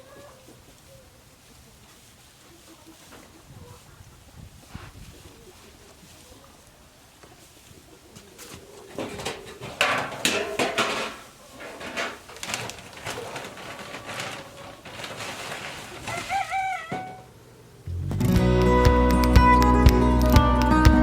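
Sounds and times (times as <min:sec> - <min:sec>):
knocks and rustles: 0:08.3 - 0:17.3.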